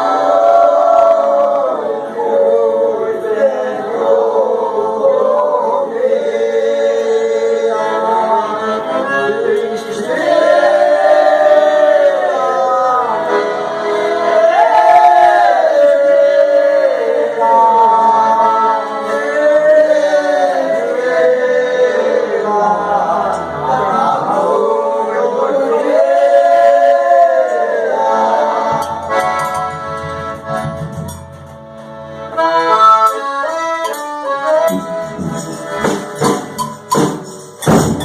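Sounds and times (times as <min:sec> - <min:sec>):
group singing in several voices: 0:00.0 - 0:29.9.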